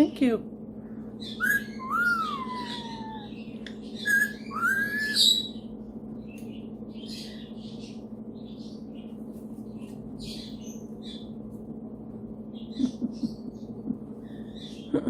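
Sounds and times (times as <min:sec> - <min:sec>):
parrot squawking: 0:01.2 - 0:05.6
parrot whistling: 0:01.2 - 0:05.6.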